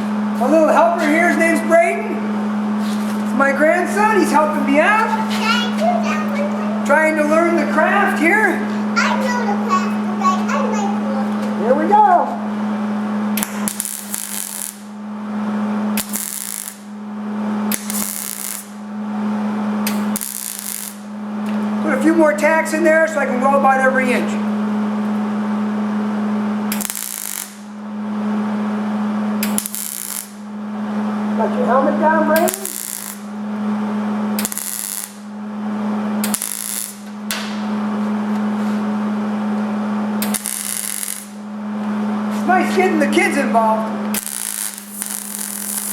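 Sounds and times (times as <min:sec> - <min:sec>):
steady hum: 0:00.0 - 0:45.9
welding arc crackling: 0:13.3 - 0:15.1, 0:15.9 - 0:19.0, 0:19.8 - 0:21.6, 0:26.7 - 0:27.9, 0:29.3 - 0:30.6, 0:32.3 - 0:35.5, 0:36.1 - 0:37.6, 0:40.1 - 0:43.1, 0:44.0 - 0:45.9.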